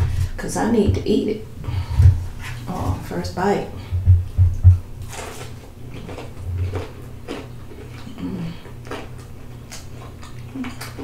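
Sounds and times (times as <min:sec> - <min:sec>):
low steady hum: 0:00.0 - 0:11.0
chewing crunchy fried fish: 0:05.0 - 0:11.0.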